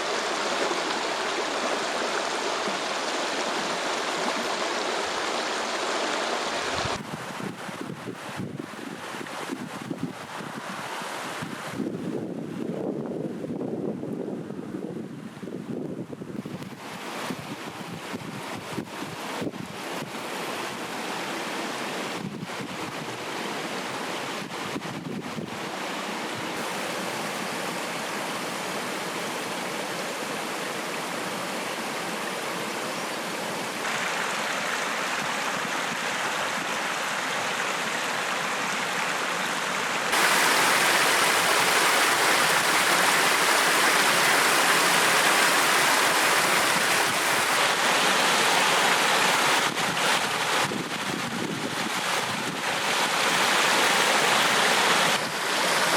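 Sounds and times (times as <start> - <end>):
stream water flowing: 0.0 - 55.9.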